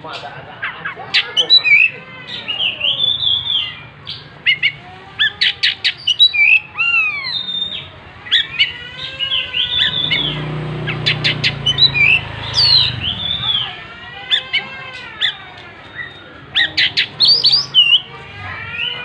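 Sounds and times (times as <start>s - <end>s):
bird singing whistled song: 4.5s - 13.6s, 16.0s - 18.0s.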